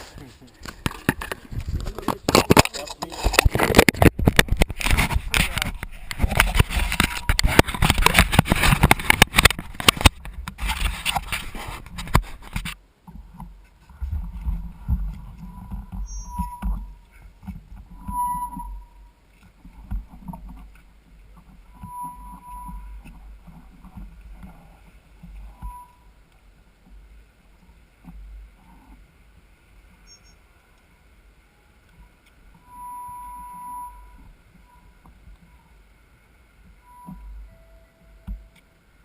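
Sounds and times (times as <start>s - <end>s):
wind buffeting microphone: 0.7s - 2.5s
faint high tones: 18.0s - 19.1s, 21.7s - 23.1s, 25.4s - 26.2s, 32.5s - 35.8s, 36.8s - 38.8s.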